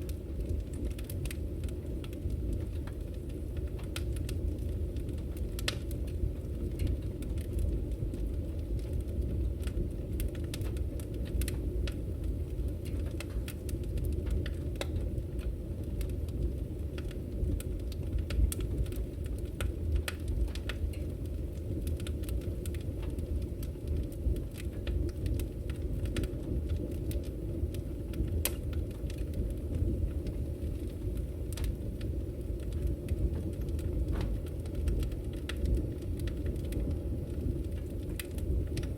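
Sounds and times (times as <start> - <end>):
fire low rumble: 0.0 - 38.9
firewood crackling and popping: 0.0 - 38.9.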